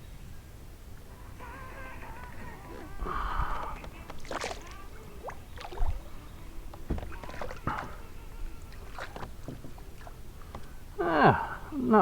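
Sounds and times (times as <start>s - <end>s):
dull thumps against hull: 3.4s - 11.0s.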